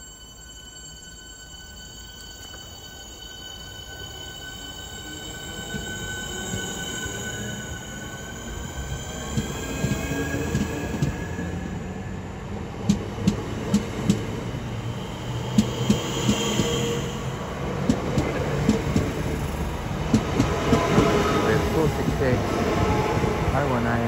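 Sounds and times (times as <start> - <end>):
electric train motor whine: 0.0 - 23.6
train low rumble: 1.1 - 24.0
train wheels clicking over rail joints: 9.2 - 11.2, 12.8 - 14.4, 15.4 - 17.0, 17.8 - 22.6.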